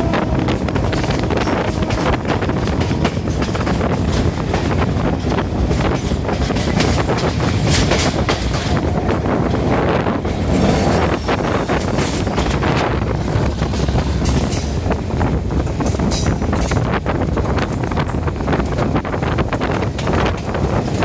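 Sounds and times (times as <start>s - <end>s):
clacks over rail joints: 0.0s - 21.0s
wheels rumbling on rail: 0.0s - 21.0s.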